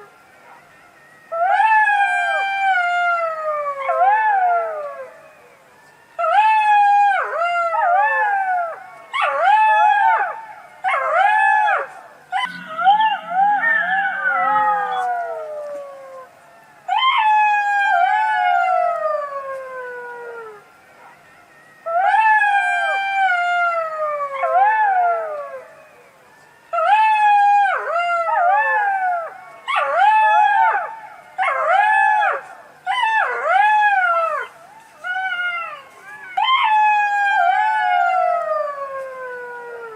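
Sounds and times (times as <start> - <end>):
fox yelping and wailing: 9.1 - 16.3.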